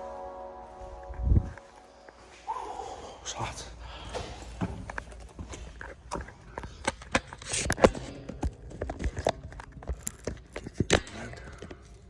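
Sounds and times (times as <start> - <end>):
footsteps on hard path: 4.0 - 10.8.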